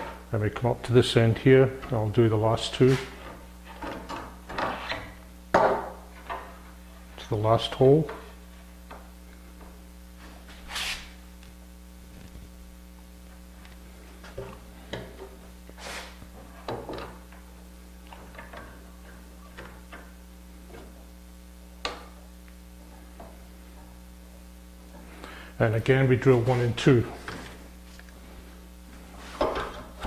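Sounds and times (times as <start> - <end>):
low electrical hum: 0.0 - 30.0
wood sliding scrapes: 10.7 - 11.1, 15.8 - 16.2.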